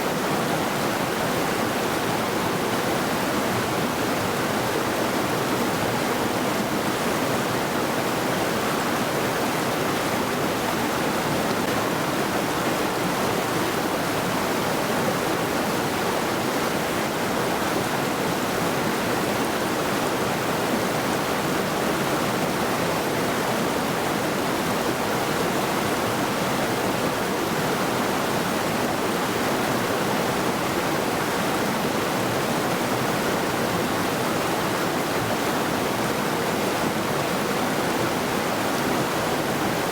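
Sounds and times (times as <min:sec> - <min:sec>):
river rushing over stones: 0:00.1 - 0:39.9.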